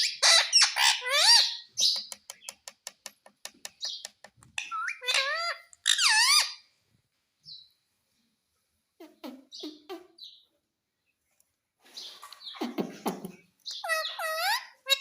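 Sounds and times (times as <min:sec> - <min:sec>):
parrot calling and chattering: 0:00.0 - 0:02.6, 0:03.8 - 0:06.7, 0:09.0 - 0:10.4, 0:12.2 - 0:15.0
parrot clicking: 0:01.8 - 0:04.7.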